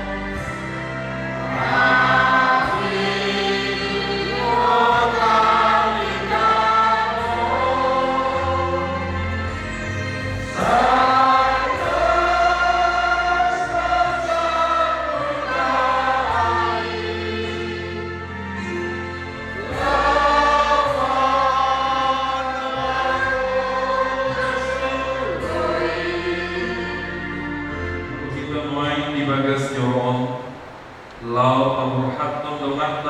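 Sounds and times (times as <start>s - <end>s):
group singing a hymn: 0.0s - 33.0s.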